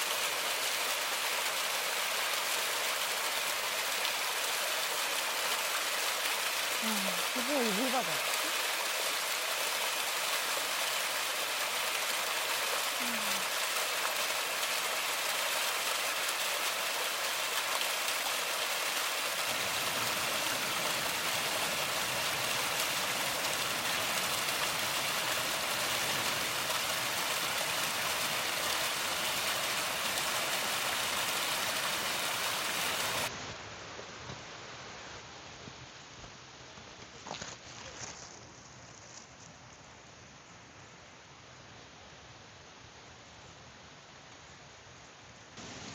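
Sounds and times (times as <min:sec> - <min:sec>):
rushing stream: 0:00.0 - 0:34.0, 0:45.6 - 0:45.9
heavy rain: 0:00.0 - 0:36.2, 0:45.6 - 0:45.9.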